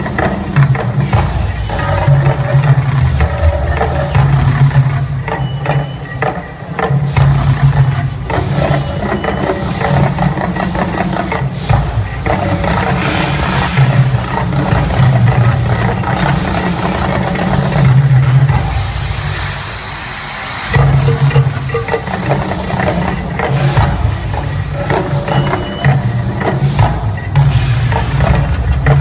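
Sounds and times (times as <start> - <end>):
deep steady rumble: 0.0 - 5.4, 7.2 - 29.0
sharp hits: 12.3 - 16.9.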